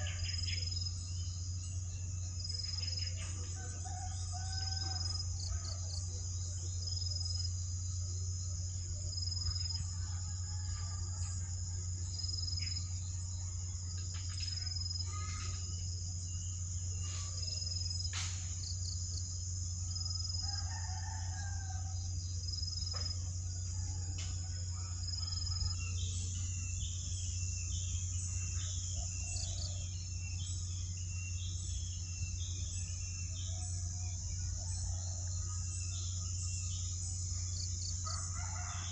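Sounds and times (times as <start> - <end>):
high insect drone: 0.0 - 38.9
rooster crowing: 3.5 - 5.8, 10.0 - 11.6, 20.4 - 22.1, 23.4 - 25.8, 38.0 - 38.9.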